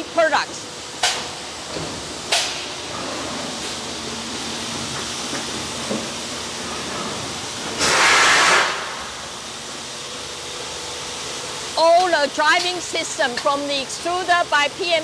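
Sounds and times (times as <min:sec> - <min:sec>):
machine mechanical hum: 0:00.0 - 0:15.0
compressed air hiss: 0:07.7 - 0:09.8.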